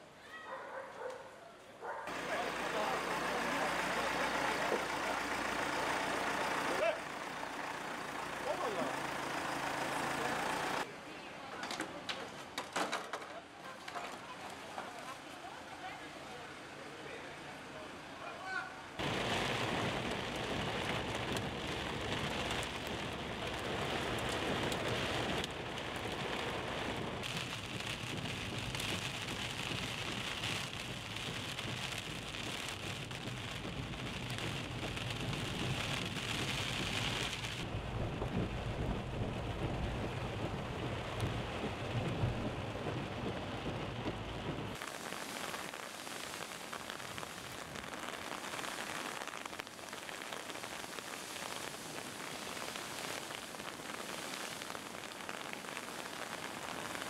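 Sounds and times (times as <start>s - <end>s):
heavy rain pouring: 2.1s - 10.9s, 18.9s - 57.0s
deep rumble: 19.0s - 44.8s.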